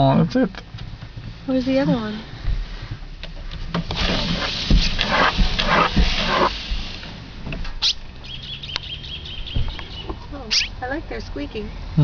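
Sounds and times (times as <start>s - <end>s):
small birds rasping calls: 7.8s - 11.0s.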